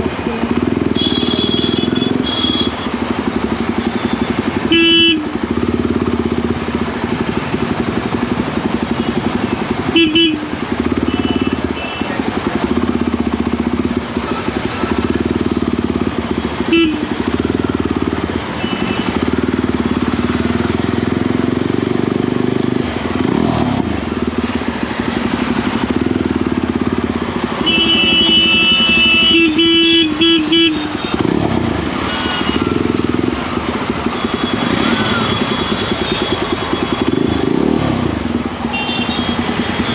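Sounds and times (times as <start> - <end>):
motorcycle engine running: 0.0 - 39.9
vehicle horns honking: 0.8 - 3.0, 3.8 - 5.4, 8.8 - 12.2, 16.4 - 17.8, 18.4 - 19.6, 27.6 - 33.3, 34.0 - 37.8, 38.6 - 39.9.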